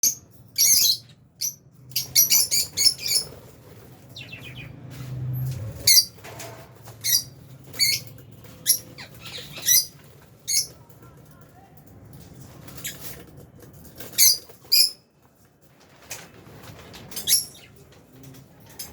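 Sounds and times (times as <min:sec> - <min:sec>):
lovebirds chirping: 0:00.0 - 0:04.8, 0:07.0 - 0:10.8.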